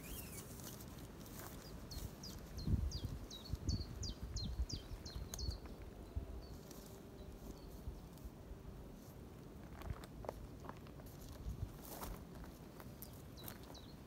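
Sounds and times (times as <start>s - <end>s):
small bird singing: 0.0s - 8.2s, 12.9s - 14.0s.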